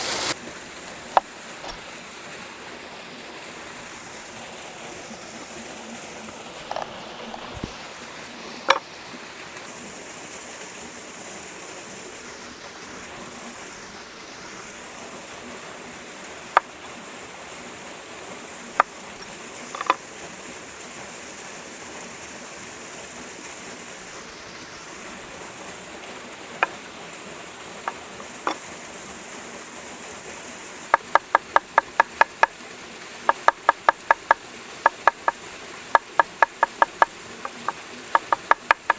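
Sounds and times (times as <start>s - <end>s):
sharp taps and clicks: 18.8s - 20.0s, 26.6s - 26.9s, 27.8s - 28.6s, 30.9s - 32.6s, 33.3s - 38.9s
knife chopping on wooden board: 19.7s - 20.0s, 27.9s - 28.6s.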